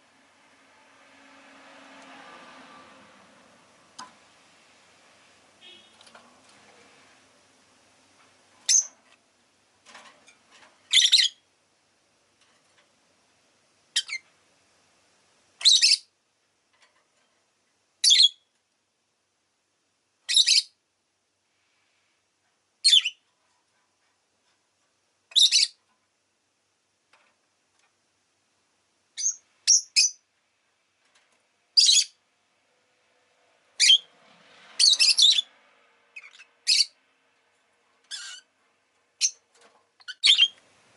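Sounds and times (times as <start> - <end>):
lovebird shrill chirps: 8.7 - 8.9, 10.9 - 11.4, 14.0 - 14.2, 15.6 - 16.1, 18.0 - 18.4, 20.3 - 20.8, 22.8 - 23.2, 25.3 - 25.8, 29.2 - 30.2, 31.8 - 32.2, 33.8 - 34.1, 34.8 - 35.5, 36.2 - 37.0, 40.0 - 40.6.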